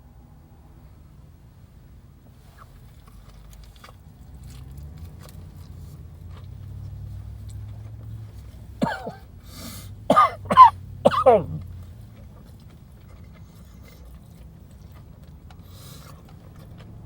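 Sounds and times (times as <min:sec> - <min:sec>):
low steady hum: 0:00.0 - 0:17.0
man chewing with crunching: 0:02.4 - 0:17.0
sharp breath: 0:09.4 - 0:10.0
strained vocal outbursts: 0:10.1 - 0:11.7.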